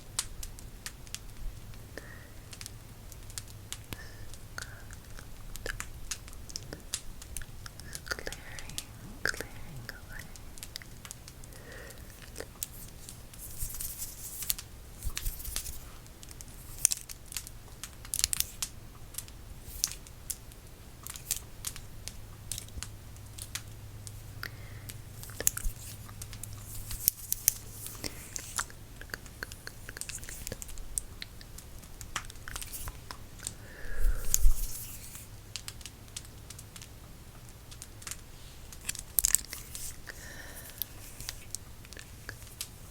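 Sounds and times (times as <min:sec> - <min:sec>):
fire crackling and popping: 0:00.2 - 0:42.9
rustling swishes: 0:12.1 - 0:16.9, 0:34.0 - 0:35.3.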